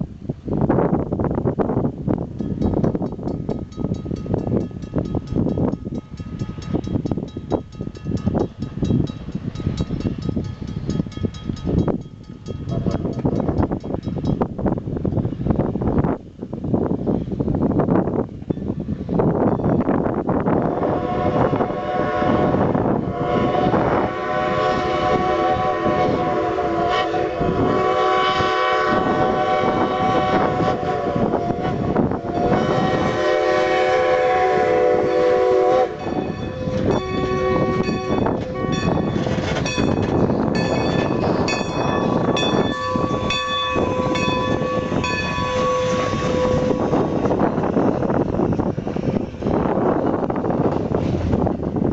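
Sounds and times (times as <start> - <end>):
train passing: 1.3 - 51.9
steam locomotive whistle chord: 20.6 - 39.2, 40.5 - 48.6.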